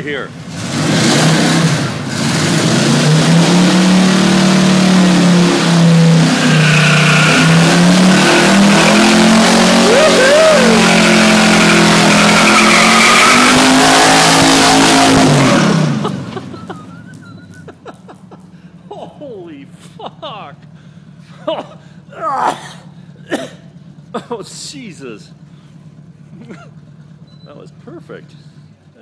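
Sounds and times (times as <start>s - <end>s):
truck engine revving: 0.0s - 28.5s
tires squealing on concrete: 0.4s - 18.6s.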